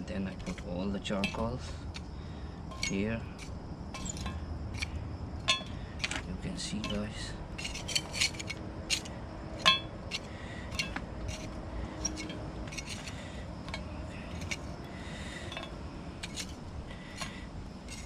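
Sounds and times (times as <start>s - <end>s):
charcoal clinking on metal lid: 0.4s - 1.8s, 2.7s - 6.2s, 6.8s - 14.7s.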